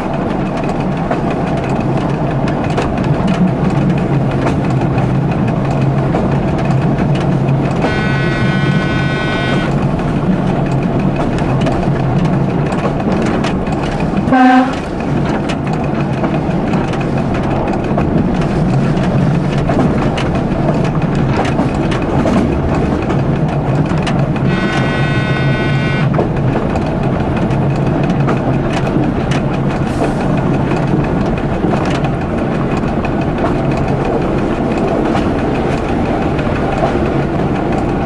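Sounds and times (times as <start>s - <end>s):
train engine and rail noise: 0.0s - 38.0s
high-pitched tone: 7.8s - 9.8s, 24.5s - 26.1s
train horn blast: 7.8s - 9.8s, 14.3s - 14.8s, 24.4s - 26.2s.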